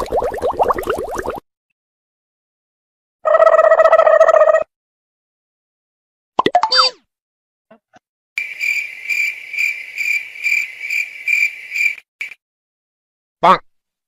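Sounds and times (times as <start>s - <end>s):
cartoon sliding tones: 6.4s - 7.0s.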